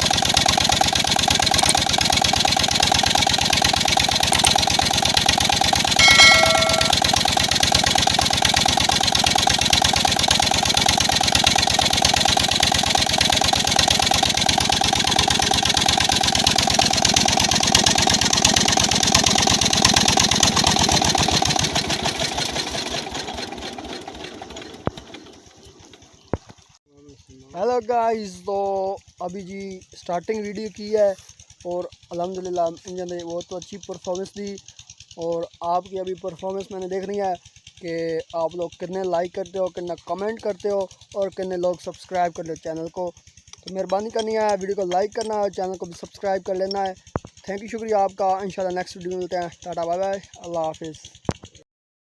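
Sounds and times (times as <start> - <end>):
diesel engine running: 0.0 - 5.9, 6.9 - 26.3.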